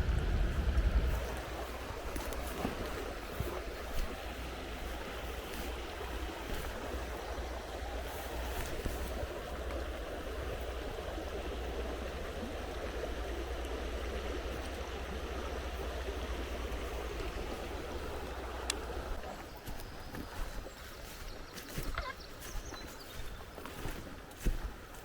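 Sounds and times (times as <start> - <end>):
river water rushing: 0.0 - 19.6.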